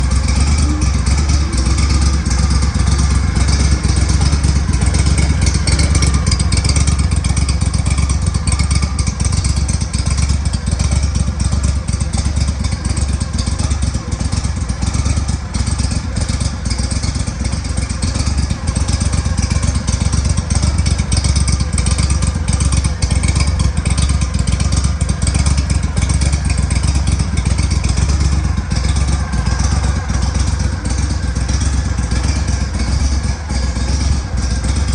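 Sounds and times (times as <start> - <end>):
boat motor running: 0.0 - 34.9.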